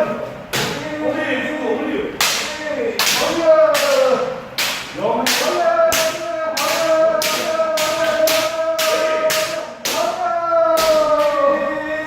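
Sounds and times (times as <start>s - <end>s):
bamboo swords striking: 2.2s - 10.2s.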